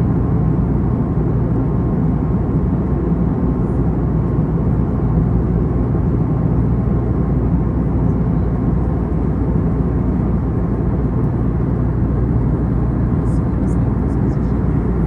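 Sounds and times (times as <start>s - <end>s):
aircraft engines and airflow rumble: 0.0s - 15.0s
faint steady whine: 8.0s - 15.0s.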